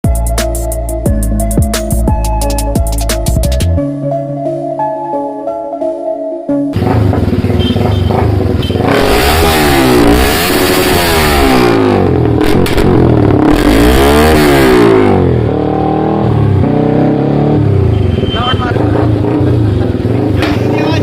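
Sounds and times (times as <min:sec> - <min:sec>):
motorcycle engine revving: 0:06.7 - 0:21.0
exhaust cracks: 0:06.8 - 0:15.5.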